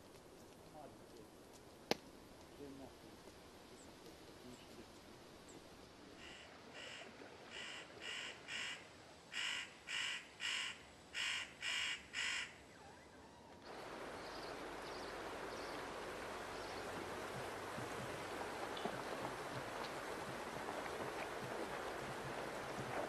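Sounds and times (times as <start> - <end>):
river flowing: 4.5 - 12.3, 13.6 - 23.0
bird crow-like calls: 6.2 - 12.6.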